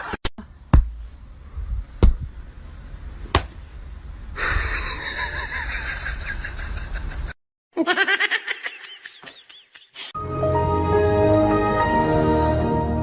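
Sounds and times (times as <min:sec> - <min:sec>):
sharp knocks: 0:02.0 - 0:02.3, 0:03.3 - 0:03.6.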